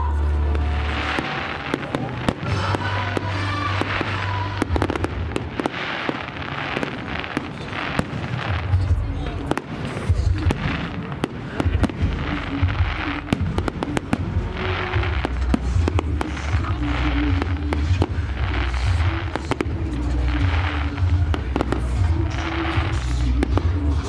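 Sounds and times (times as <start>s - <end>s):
fireworks bangs and crackles: 0.0s - 24.0s
music from loudspeakers: 0.0s - 24.0s
deep low rumble: 11.7s - 24.0s.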